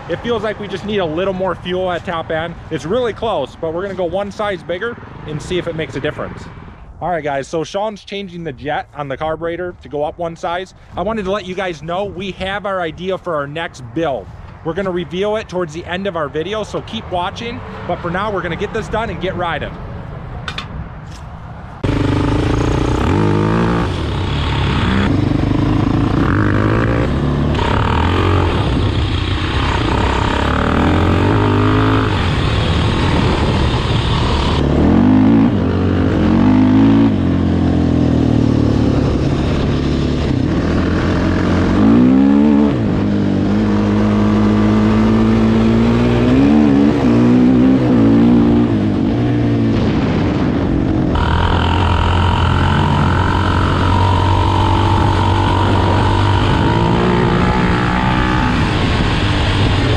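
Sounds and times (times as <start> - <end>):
off-road motorcycle engine revving: 21.8 - 59.9.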